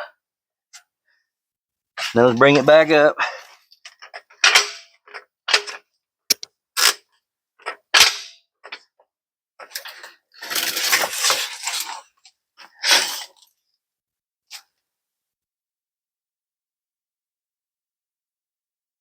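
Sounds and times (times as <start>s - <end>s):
sharp metallic clanks and knocks: 4.0s - 6.5s.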